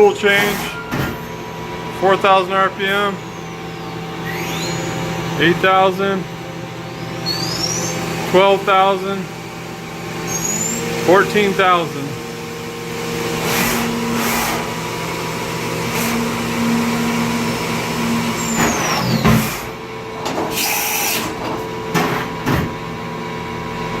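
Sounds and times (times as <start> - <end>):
machine hum and whir: 0.0 - 24.0
high whine falling: 1.2 - 20.2
clunks: 18.2 - 22.9.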